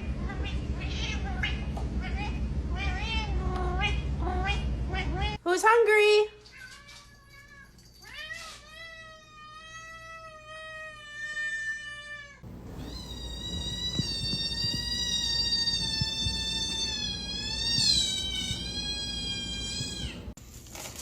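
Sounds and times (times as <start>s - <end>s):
low background rumble: 12.4s - 20.4s.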